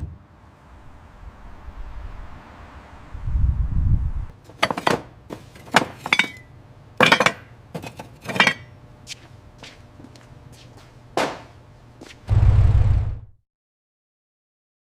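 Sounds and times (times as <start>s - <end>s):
metallic clinks and clanks: 5.6s - 8.7s
low rumble: 12.3s - 13.4s.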